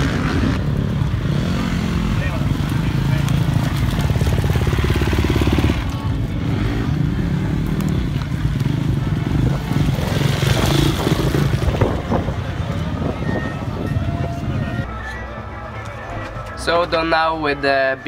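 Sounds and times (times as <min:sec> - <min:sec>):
motocross bike engine: 0:00.0 - 0:14.9.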